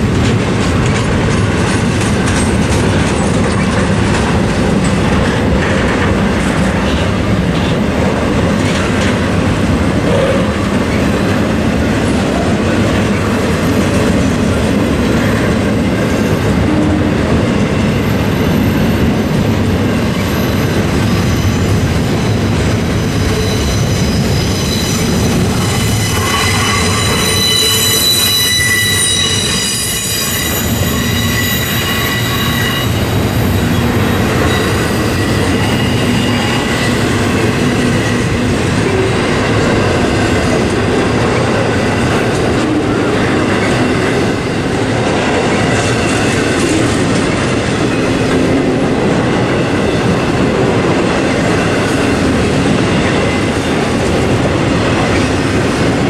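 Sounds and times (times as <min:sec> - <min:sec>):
freight train wheels clattering: 0:00.0 - 0:56.0
high wheel squeal: 0:17.8 - 0:42.1.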